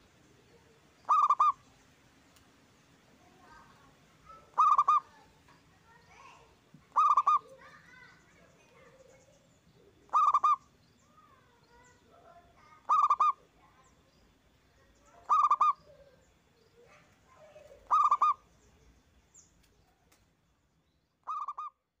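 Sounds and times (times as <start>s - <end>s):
faint bird calls: 0.0s - 1.9s, 3.2s - 20.4s, 21.1s - 22.0s
dove cooing: 0.6s - 1.6s, 4.3s - 5.2s, 6.9s - 7.8s, 9.8s - 10.7s, 12.2s - 13.6s, 15.1s - 16.2s, 16.8s - 18.4s, 21.3s - 21.7s.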